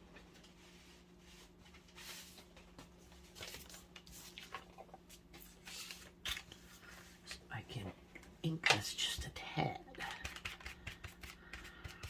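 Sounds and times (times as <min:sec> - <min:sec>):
low steady hum: 0:00.0 - 0:12.0
paper rustling: 0:01.3 - 0:07.0.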